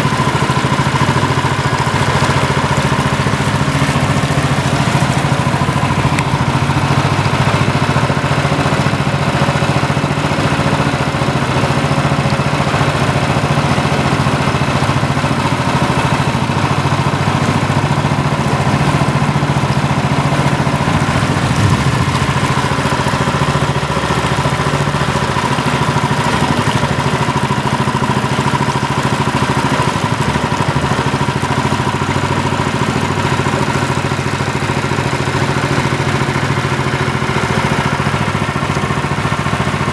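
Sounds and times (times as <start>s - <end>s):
motor humming and whining: 14.9s - 24.5s.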